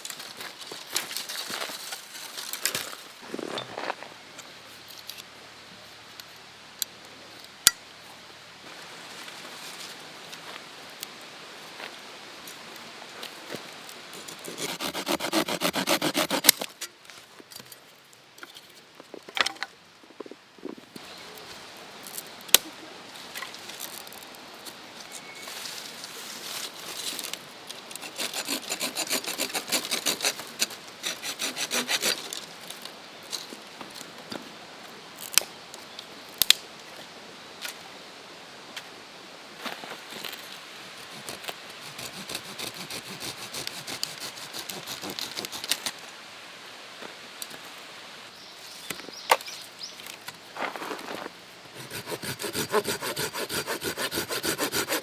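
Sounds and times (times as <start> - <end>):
saw cutting through wood: 14.5 - 16.6, 28.0 - 32.2, 41.0 - 45.8, 51.7 - 55.0.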